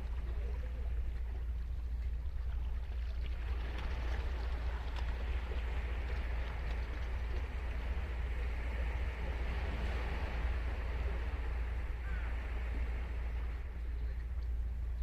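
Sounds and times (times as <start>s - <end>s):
constant low rumble: 0.0s - 15.0s
ocean surf washing onto beach: 3.4s - 15.0s.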